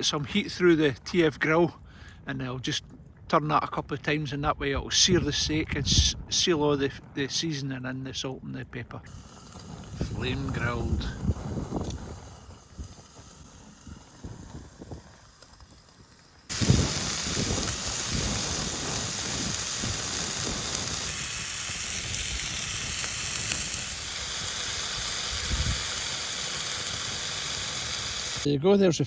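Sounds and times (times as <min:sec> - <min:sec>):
steak sizzling on a grill: 0:09.1 - 0:28.5.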